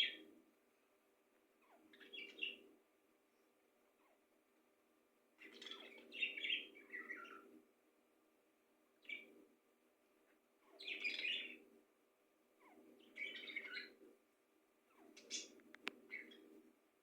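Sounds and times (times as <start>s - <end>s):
bird chirping: 0.0s - 0.3s, 1.6s - 2.7s, 5.4s - 7.6s, 9.0s - 9.4s, 10.6s - 11.7s, 12.6s - 14.0s, 14.8s - 16.7s.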